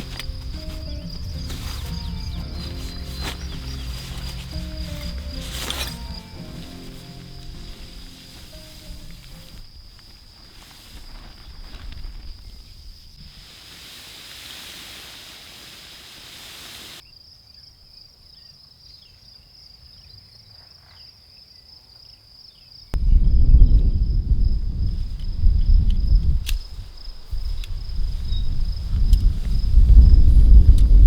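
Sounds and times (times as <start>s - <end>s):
insect trilling: 0.0s - 12.6s
soft hiss: 0.0s - 17.0s.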